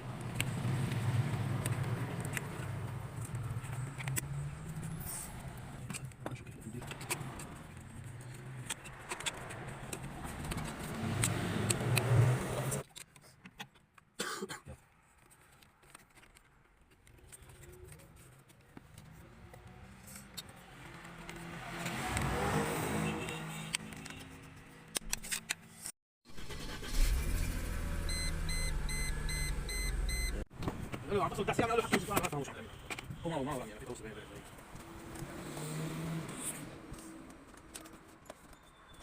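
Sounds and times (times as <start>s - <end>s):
faint handling sounds: 14.8s - 21.4s.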